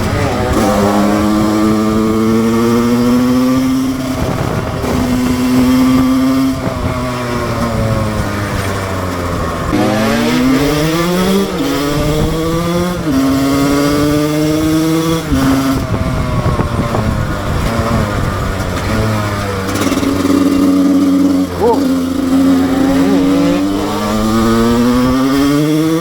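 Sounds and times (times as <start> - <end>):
two-stroke motorcycle engine: 0.0 - 26.0.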